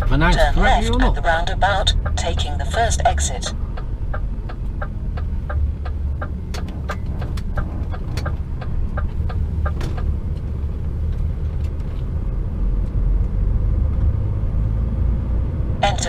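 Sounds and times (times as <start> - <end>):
turn indicator ticking: 0.0 - 12.2
diesel engine rumbling: 0.0 - 16.0.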